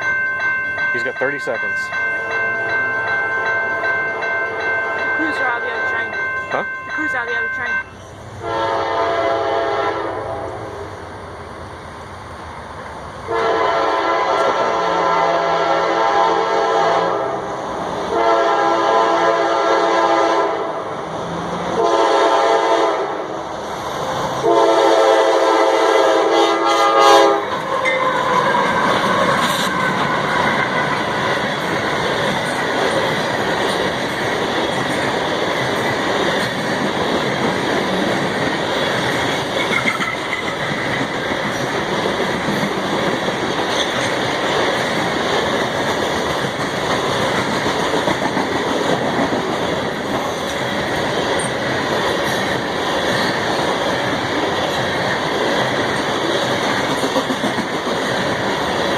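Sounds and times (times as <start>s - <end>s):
train rumble and wheel clatter: 0.0s - 58.9s
locomotive horn blasts: 8.4s - 10.6s, 13.3s - 17.4s, 18.1s - 20.7s, 21.8s - 23.1s, 24.4s - 28.1s.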